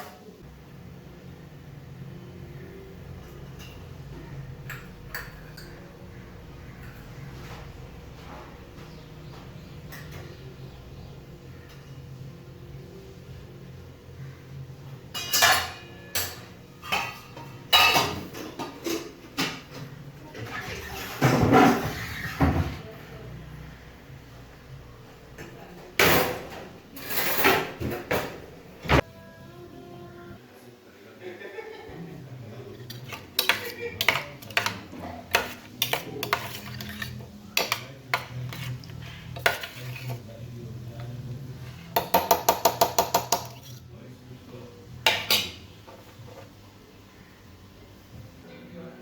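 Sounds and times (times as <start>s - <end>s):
pots and utensils clanking: 3.2s - 6.0s, 9.6s - 10.6s, 15.0s - 22.8s, 26.0s - 28.4s, 32.7s - 40.3s, 41.0s - 43.9s, 45.0s - 46.6s.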